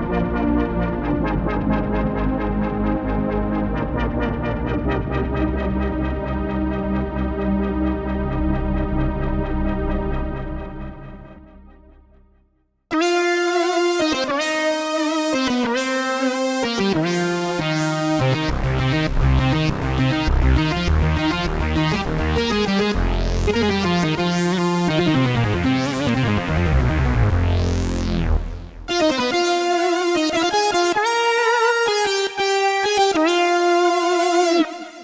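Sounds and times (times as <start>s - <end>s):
synth bass line: 12.9s - 35.0s
bright lead synth melody: 13.0s - 35.0s.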